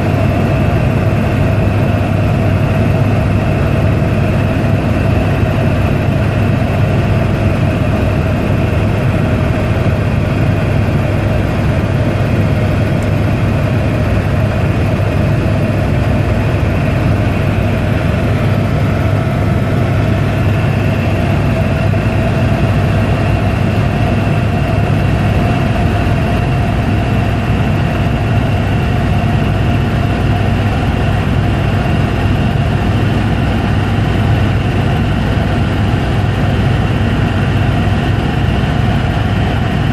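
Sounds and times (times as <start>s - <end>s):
helicopter engine and rotor noise: 0.0s - 39.9s.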